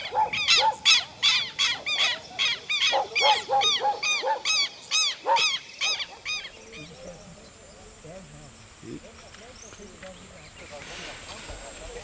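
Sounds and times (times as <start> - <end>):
lower-pitched bird calls: 0.0 - 7.3
birds calling rapidly: 0.0 - 12.0.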